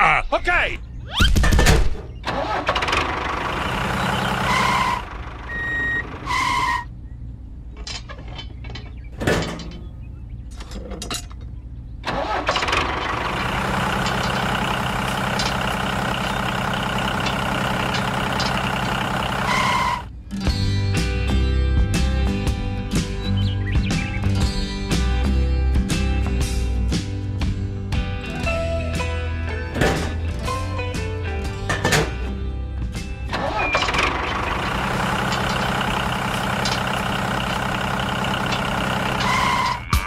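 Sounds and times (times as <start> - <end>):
small tractor engine running: 2.3 - 6.5, 12.0 - 20.1, 33.3 - 39.9.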